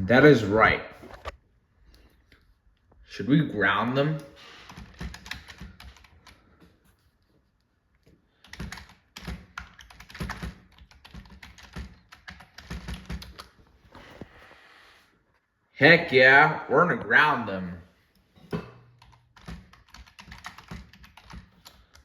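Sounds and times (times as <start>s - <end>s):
computer keyboard typing: 4.2s - 6.6s, 8.4s - 13.6s, 19.0s - 22.0s.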